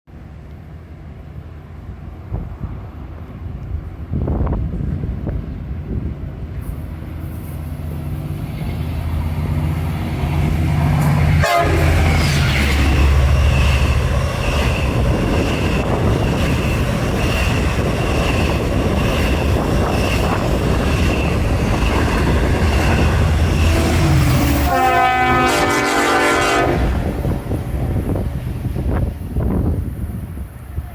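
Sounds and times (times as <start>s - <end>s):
locomotive engine rumble: 0.1s - 30.9s
train cars rail noise: 0.2s - 30.9s
train horn: 11.0s - 13.4s, 22.8s - 27.5s.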